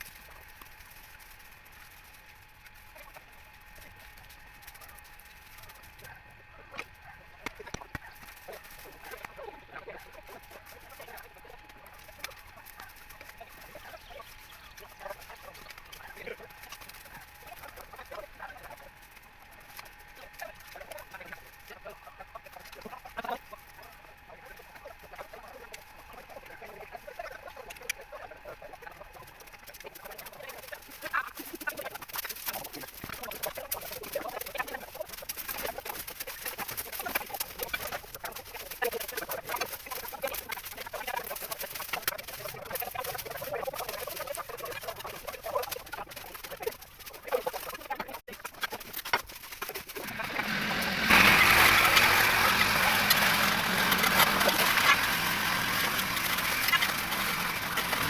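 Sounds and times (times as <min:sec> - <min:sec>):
animal calls chattering: 0:06.9 - 0:48.9, 0:49.8 - 0:58.0.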